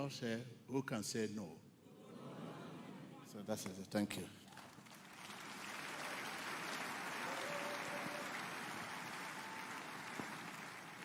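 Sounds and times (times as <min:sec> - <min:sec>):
congregation applauding: 0:04.4 - 0:11.0.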